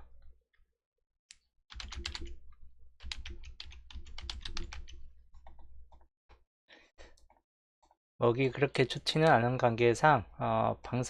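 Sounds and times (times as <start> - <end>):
typing on computer keyboard: 1.7 - 2.4, 3.0 - 5.7.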